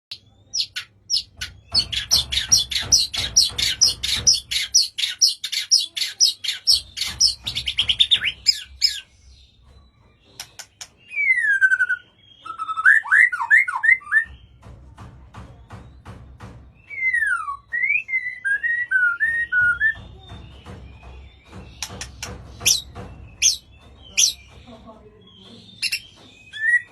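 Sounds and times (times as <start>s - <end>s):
bird singing rapid sharp notes: 0.1s - 26.9s
bird whistled phrases: 11.1s - 14.3s, 16.9s - 20.0s.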